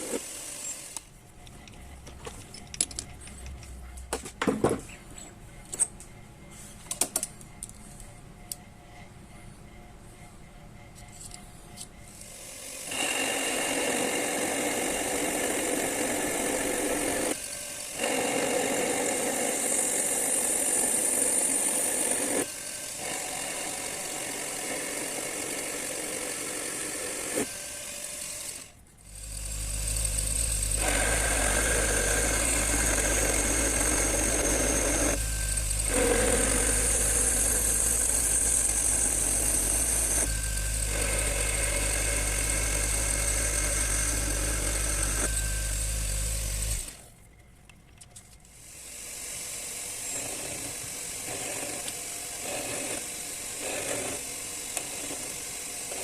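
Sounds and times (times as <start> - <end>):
metal lathe running: 12.1 - 46.9
metal cutting: 12.1 - 47.1, 48.5 - 56.0.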